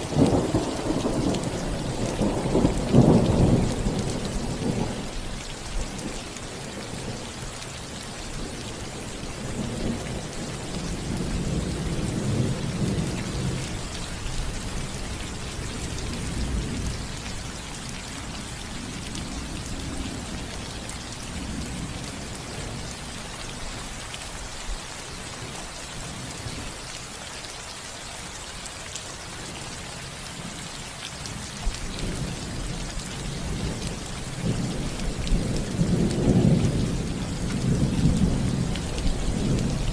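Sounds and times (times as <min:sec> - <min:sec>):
rain pattering on roof: 0:00.0 - 0:39.9
rolling thunder: 0:00.1 - 0:05.2, 0:31.6 - 0:39.9.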